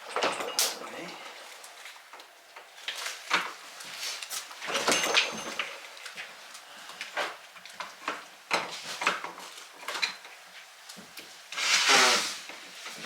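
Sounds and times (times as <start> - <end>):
parts scraping against wood: 11.5 - 13.0.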